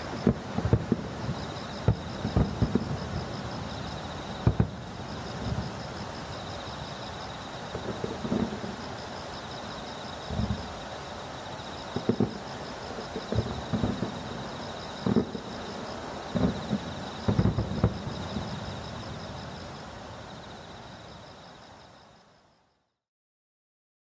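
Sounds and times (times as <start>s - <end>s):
fireworks booming: 0.0s - 7.0s, 7.6s - 9.0s, 10.3s - 10.7s, 11.8s - 19.8s.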